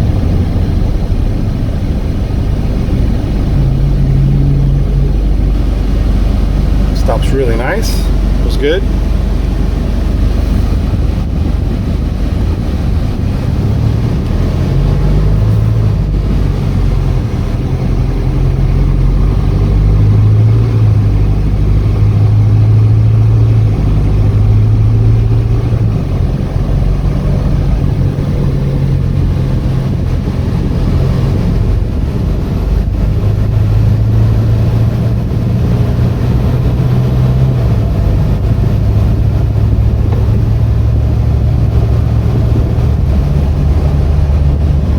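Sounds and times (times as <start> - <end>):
road noise: 0.0 - 44.9
truck diesel engine running: 0.0 - 44.9.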